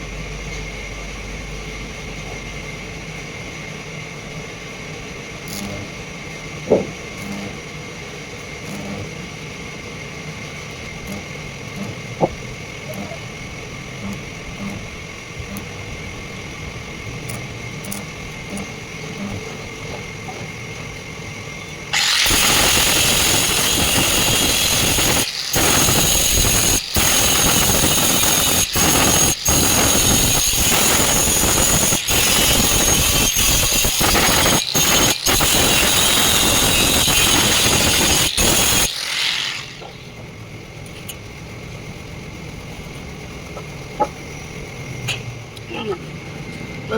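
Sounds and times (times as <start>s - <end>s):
machine humming: 0.0s - 46.9s
high-pitched grinding squeal: 11.1s - 12.0s, 21.9s - 40.2s.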